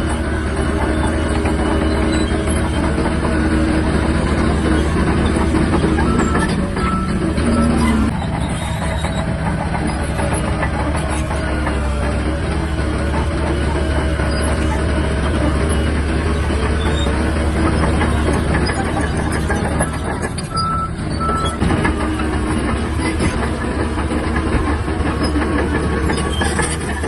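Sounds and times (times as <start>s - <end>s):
bulldozer diesel engine running: 0.0s - 27.0s
clanking track clatter: 0.0s - 27.0s
short beeps: 6.1s - 7.8s.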